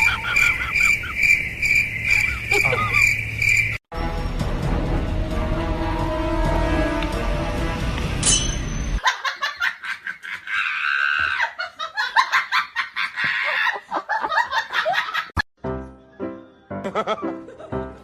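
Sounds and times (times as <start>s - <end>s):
rapid high-pitched laughter: 0.0s - 1.2s, 2.3s - 3.1s, 9.0s - 15.3s
music: 3.9s - 9.0s, 15.6s - 18.0s.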